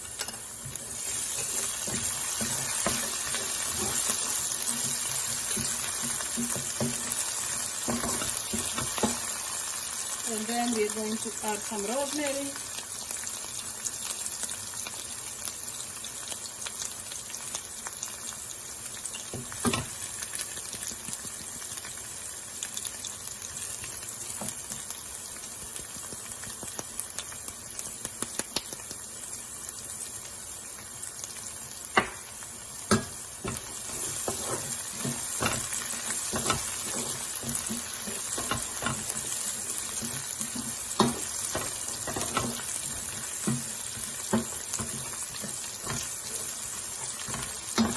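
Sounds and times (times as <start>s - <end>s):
oil sizzling in a pan: 0.0s - 47.9s
utensil scraping a pan: 0.1s - 9.3s, 33.4s - 47.9s.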